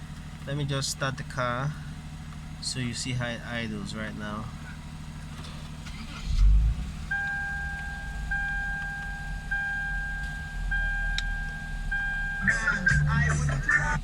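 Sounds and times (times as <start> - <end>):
car engine starting and idling: 0.0 - 14.0
warning chime: 7.1 - 13.4.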